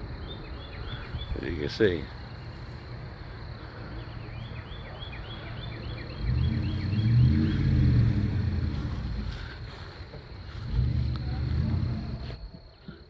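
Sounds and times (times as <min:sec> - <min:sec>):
truck engine revving: 0:05.9 - 0:12.5.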